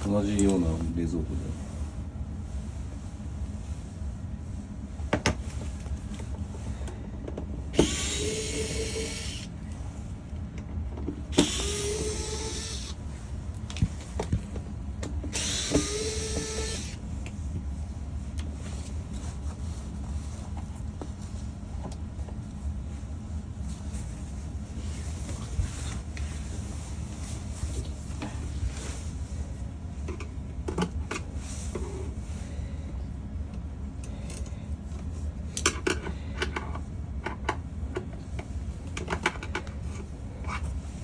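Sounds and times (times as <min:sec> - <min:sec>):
electric screwdriver whirring: 0:07.8 - 0:09.5, 0:11.3 - 0:13.0, 0:15.3 - 0:17.0.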